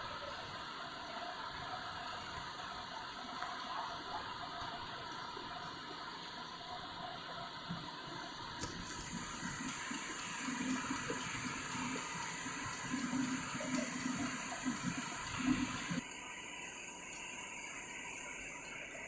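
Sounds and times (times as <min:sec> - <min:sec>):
coolant splashing: 0:08.6 - 0:16.0
lathe running: 0:09.0 - 0:16.0.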